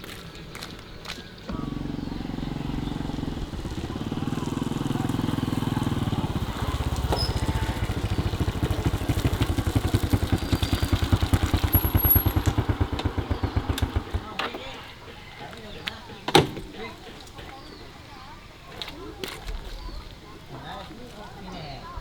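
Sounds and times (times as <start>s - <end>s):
small engine chugging: 0.0s - 18.5s.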